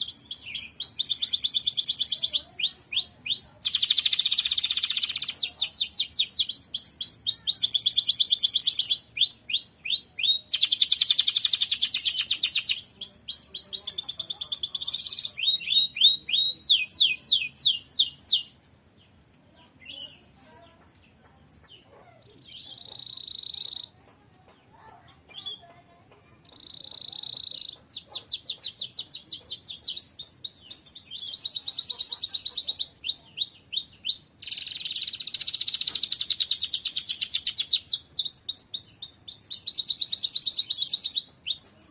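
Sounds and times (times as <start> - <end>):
canary trilling: 0.0 - 18.5, 21.7 - 24.0, 24.8 - 41.9
bird whistles: 32.7 - 41.8.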